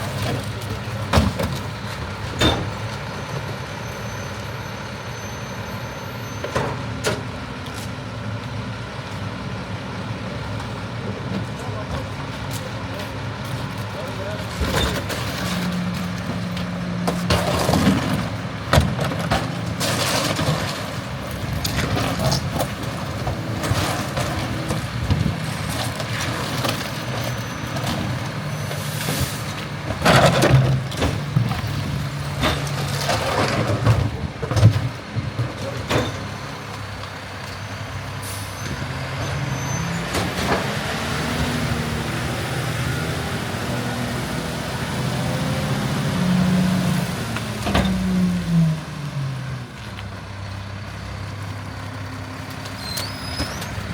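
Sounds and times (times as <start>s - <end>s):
bangs and clatters of recycling: 0.0s - 3.6s, 14.2s - 42.0s, 47.0s - 48.9s
diesel engine running: 0.0s - 53.9s
air brakes hissing: 38.2s - 38.8s.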